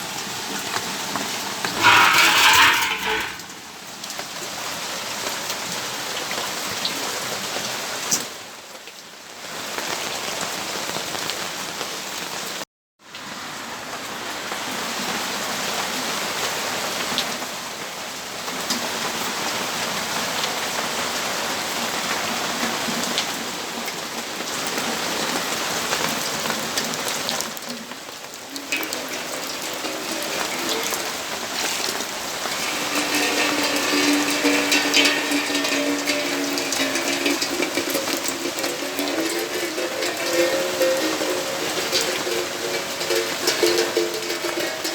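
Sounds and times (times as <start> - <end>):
steady rainfall pattering: 0.0 - 12.6, 13.2 - 44.9.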